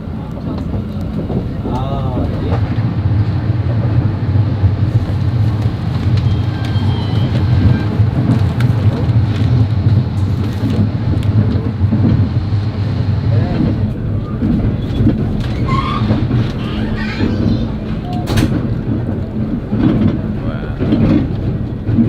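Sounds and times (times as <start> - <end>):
train rumble and wheel noise: 0.0 - 22.0
sharp clicks and rattles: 13.5 - 22.0.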